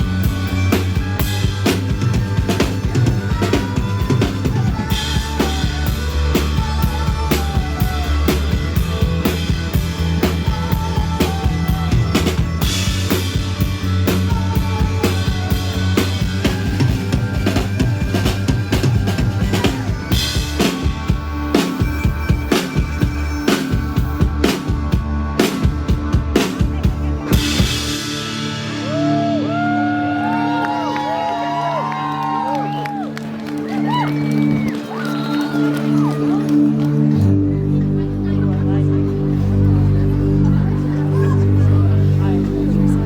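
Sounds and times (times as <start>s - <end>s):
drum kit beat: 0.0s - 29.8s
sustained bass notes: 0.0s - 34.7s, 35.8s - 43.0s.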